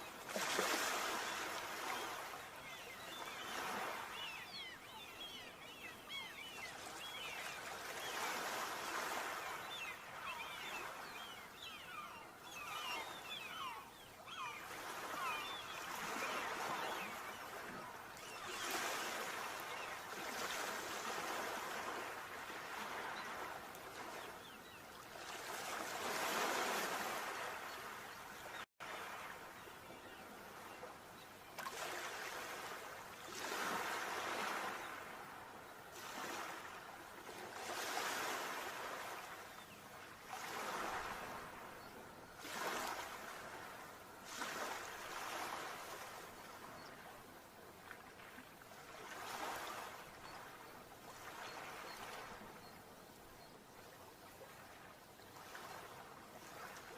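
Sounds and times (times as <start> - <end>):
sea waves breaking: 0.0 - 24.6, 42.4 - 46.8.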